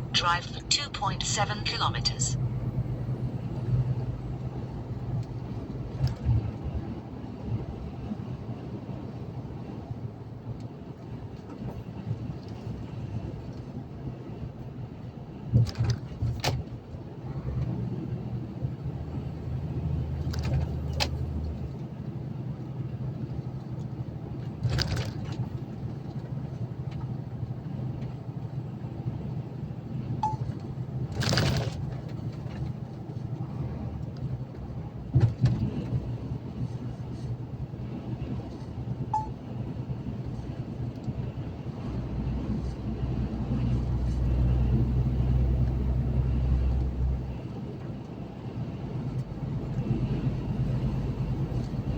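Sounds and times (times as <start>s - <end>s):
truck engine and road drone: 0.0s - 51.9s
short faint beeps: 30.2s - 30.5s, 39.1s - 39.4s.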